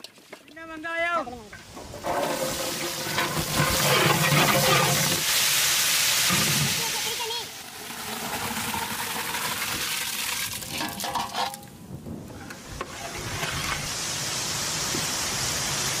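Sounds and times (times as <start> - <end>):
stirring clatter: 1.6 - 5.2
fish sizzling in oil: 2.1 - 10.6, 13.8 - 16.0.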